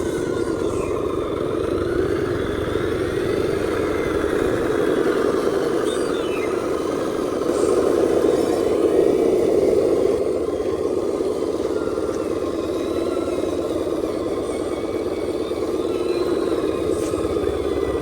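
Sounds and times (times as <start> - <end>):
toy truck motor running: 0.0 - 18.0.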